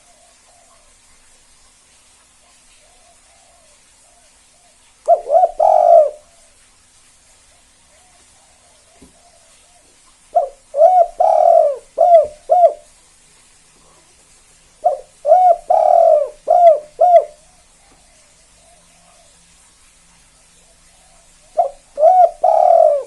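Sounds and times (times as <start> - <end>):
dove cooing: 2.4 - 6.4, 7.5 - 12.9, 14.8 - 19.4, 20.6 - 23.0.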